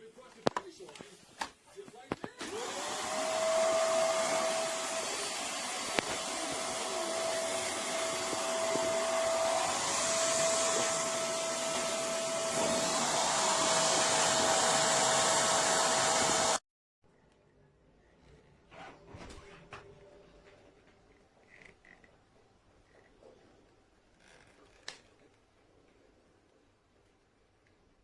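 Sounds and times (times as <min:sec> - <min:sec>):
vacuum cleaner running: 0:02.4 - 0:16.6.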